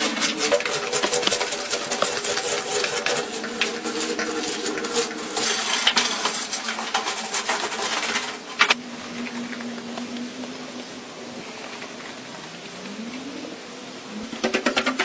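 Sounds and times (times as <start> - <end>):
hard objects clicking and clattering: 0.0 - 8.8, 14.3 - 15.0.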